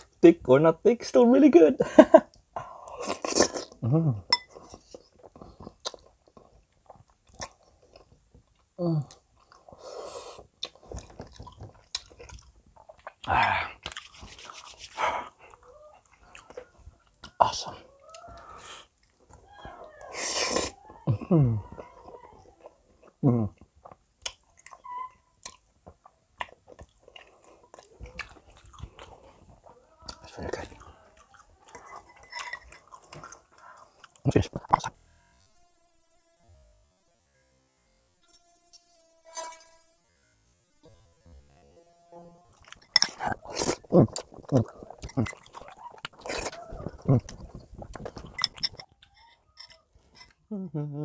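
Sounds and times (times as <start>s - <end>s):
chewing and slurping: 2.8s - 3.8s, 4.4s - 20.9s, 21.7s - 34.9s, 42.5s - 50.4s
wet mouth clicks: 10.3s - 16.6s, 23.6s - 25.7s, 42.6s - 49.2s.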